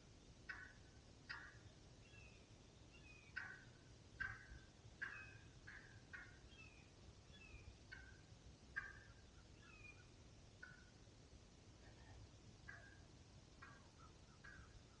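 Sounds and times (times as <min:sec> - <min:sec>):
faint turkey yelping: 0:00.5 - 0:01.6, 0:03.0 - 0:08.2, 0:08.8 - 0:10.9, 0:11.9 - 0:15.0.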